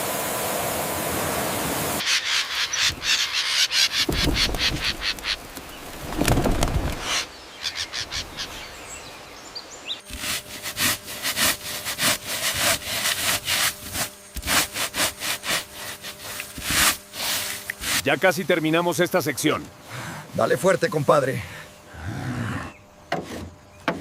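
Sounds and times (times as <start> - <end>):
dull thump: 4.0 - 7.0
hand tool strokes through wood: 10.0 - 18.1.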